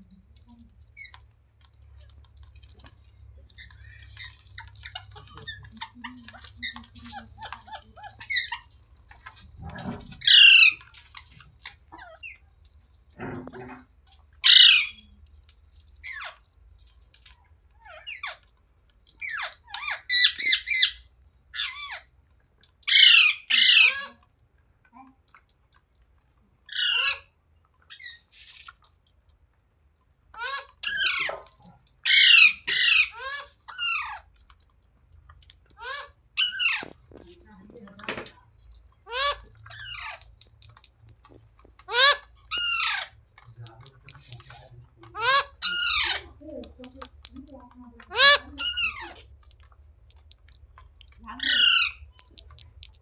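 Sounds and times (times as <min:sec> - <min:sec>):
parrot chattering: 0:02.8 - 0:12.4, 0:14.4 - 0:15.2, 0:17.8 - 0:18.4, 0:19.1 - 0:22.1, 0:22.8 - 0:24.2, 0:26.7 - 0:27.3, 0:30.4 - 0:34.3, 0:35.4 - 0:38.3, 0:39.0 - 0:53.0
parrot squawking: 0:02.8 - 0:12.4, 0:14.4 - 0:15.2, 0:17.8 - 0:18.4, 0:19.2 - 0:22.1, 0:22.8 - 0:24.2, 0:26.7 - 0:27.3, 0:30.4 - 0:34.3, 0:35.8 - 0:37.2, 0:39.0 - 0:40.3, 0:41.2 - 0:43.2, 0:44.0 - 0:47.3, 0:48.0 - 0:49.4, 0:51.2 - 0:52.6.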